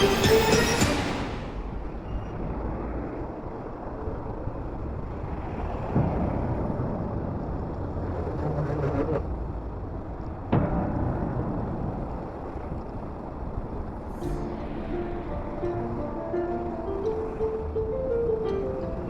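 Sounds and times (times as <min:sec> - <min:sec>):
road and traffic noise: 0:00.0 - 0:10.7
wind rumbling on microphone: 0:01.3 - 0:19.0.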